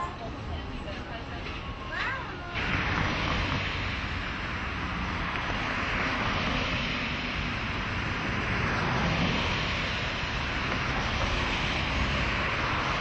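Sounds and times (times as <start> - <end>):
vehicle in motion rushing: 2.6 - 13.0.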